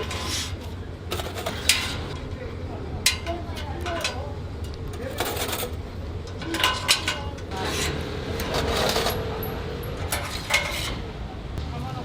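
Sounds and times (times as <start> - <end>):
steady low hum: 0.4 - 8.5.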